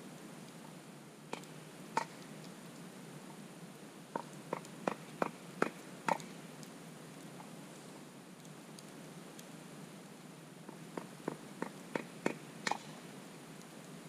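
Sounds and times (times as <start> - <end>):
low steady hiss: 0.0 - 14.0
campfire wood popping: 0.4 - 7.5, 10.6 - 14.0.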